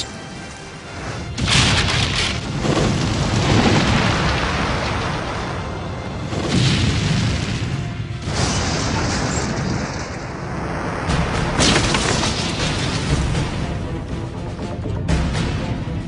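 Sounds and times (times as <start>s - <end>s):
rumbling explosion blasts: 1.4s - 13.4s.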